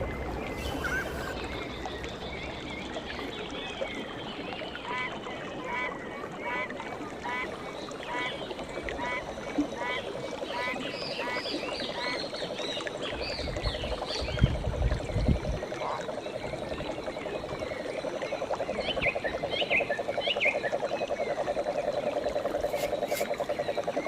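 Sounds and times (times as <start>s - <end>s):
frogs trilling: 0.0s - 3.3s, 6.5s - 24.0s
birds chirping: 0.0s - 3.5s.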